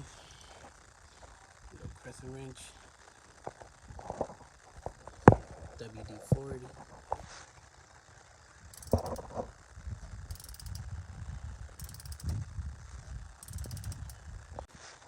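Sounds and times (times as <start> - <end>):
ratchet wrench clicking: 8.7 - 9.3, 10.3 - 10.9, 11.8 - 12.4, 13.4 - 14.2.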